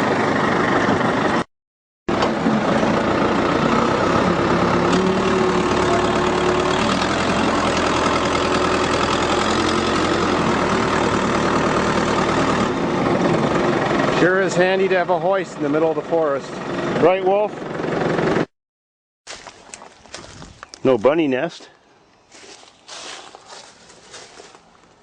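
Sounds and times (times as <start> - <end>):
hoisting machine engine running: 2.1 - 18.5.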